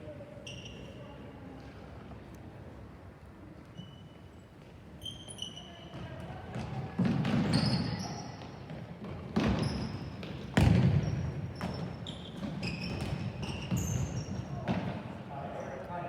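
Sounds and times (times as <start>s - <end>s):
sneakers squeaking on court: 0.4s - 1.2s, 5.0s - 15.8s.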